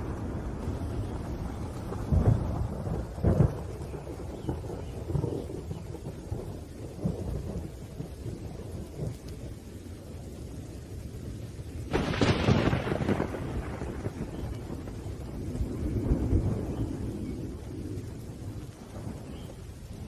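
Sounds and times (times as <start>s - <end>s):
sharp thunder clap: 0.0s - 9.2s, 11.9s - 19.4s
rain falling: 0.0s - 20.0s
rolling thunder rumbles: 0.0s - 20.0s.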